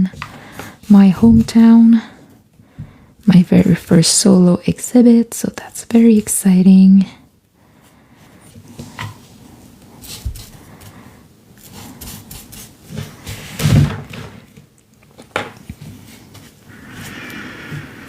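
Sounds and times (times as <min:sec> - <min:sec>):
steady rubbing on paper: 0:09.3 - 0:13.6
paper and brush rustling: 0:09.5 - 0:13.8.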